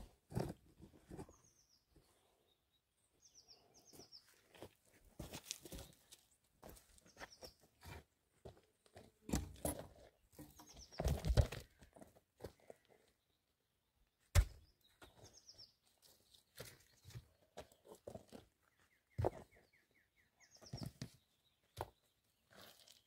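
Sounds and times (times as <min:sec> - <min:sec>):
small birds chirping: 0:01.1 - 0:04.7, 0:07.0 - 0:08.0, 0:10.1 - 0:11.9, 0:12.5 - 0:23.0.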